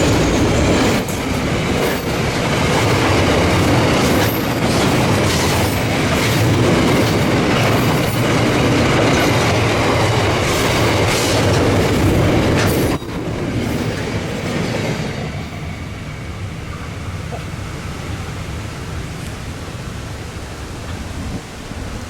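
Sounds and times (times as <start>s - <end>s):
train wheels clicking over rail joints: 0.0s - 15.8s
train rumble: 0.0s - 22.0s.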